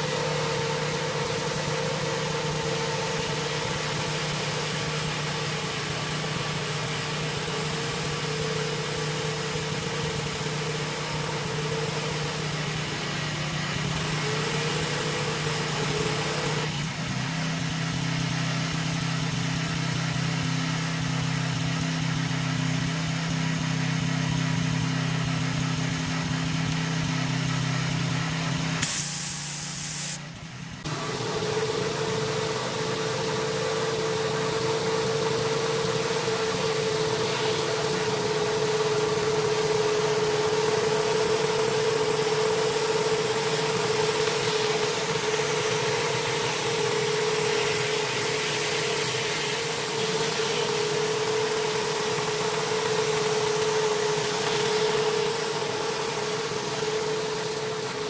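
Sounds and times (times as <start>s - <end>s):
pressure washer engine running: 0.0s - 58.0s
high pressure water spray hiss: 28.8s - 30.2s, 30.9s - 58.0s.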